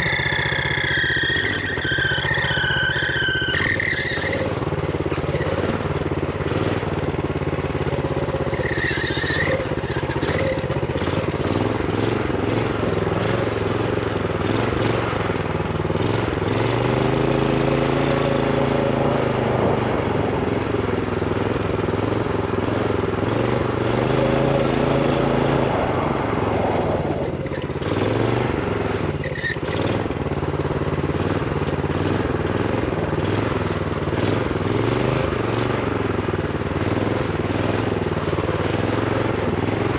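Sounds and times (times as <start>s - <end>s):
high-pitched squeals: 0.0s - 4.5s, 8.4s - 10.6s, 26.8s - 27.8s, 29.0s - 29.8s
small engine revving: 0.0s - 39.9s.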